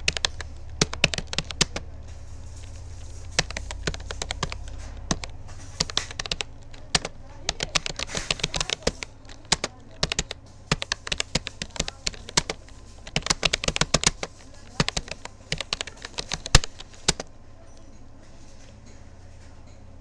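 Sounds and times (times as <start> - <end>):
keyboard typing clicks: 0.0 - 18.0
faint low hum: 0.0 - 20.0.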